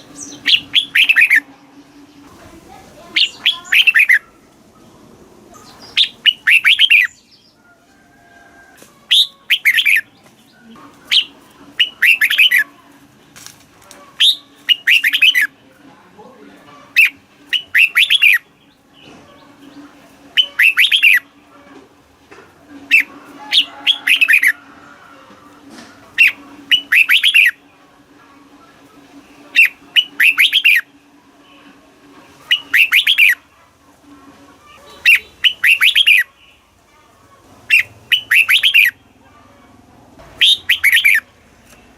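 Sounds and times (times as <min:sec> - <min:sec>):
bird singing bubbling phrases: 0:00.0 - 0:02.4, 0:03.0 - 0:04.4, 0:05.5 - 0:07.3, 0:09.1 - 0:10.1, 0:11.1 - 0:12.6, 0:14.2 - 0:15.5, 0:16.9 - 0:18.4, 0:20.3 - 0:21.3, 0:26.2 - 0:27.6, 0:29.5 - 0:30.9, 0:32.5 - 0:33.4, 0:35.0 - 0:36.6, 0:37.7 - 0:39.0, 0:40.4 - 0:41.2.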